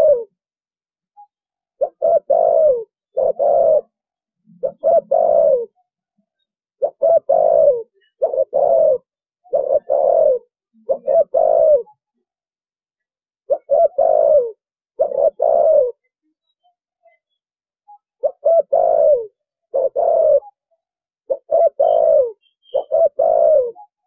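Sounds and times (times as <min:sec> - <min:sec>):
dove cooing: 0:00.0 - 0:00.3, 0:01.8 - 0:05.8, 0:06.8 - 0:12.0, 0:13.5 - 0:16.1, 0:18.2 - 0:20.6, 0:21.3 - 0:24.0.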